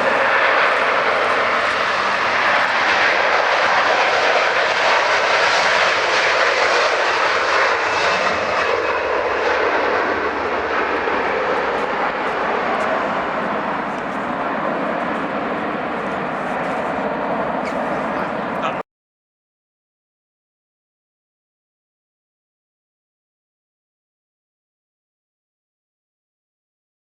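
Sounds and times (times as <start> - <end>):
airliner engines passing: 0.0 - 18.8.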